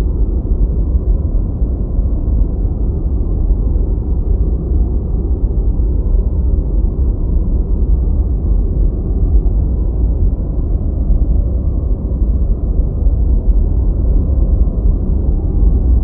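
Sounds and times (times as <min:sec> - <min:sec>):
deep white noise: 0:00.0 - 0:16.0.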